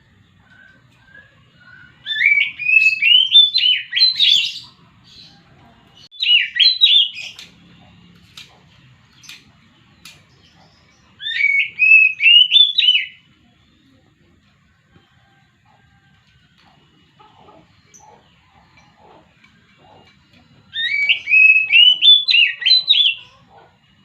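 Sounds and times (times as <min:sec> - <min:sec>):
bird singing whistled notes: 0:00.3 - 0:05.4, 0:06.1 - 0:07.9, 0:09.1 - 0:14.0, 0:19.9 - 0:23.6.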